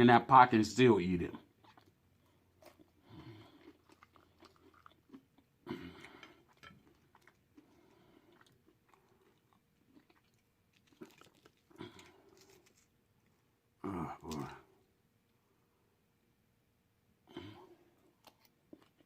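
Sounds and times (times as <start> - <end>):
chewing food: 1.3 - 14.9, 17.4 - 19.0
crunching and smacking: 1.4 - 14.9, 18.0 - 19.0.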